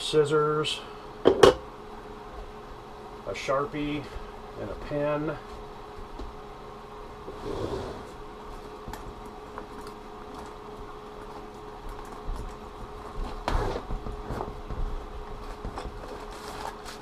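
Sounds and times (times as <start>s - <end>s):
steady hum: 0.0s - 17.0s
items clicking and rustling in bag: 8.6s - 17.0s.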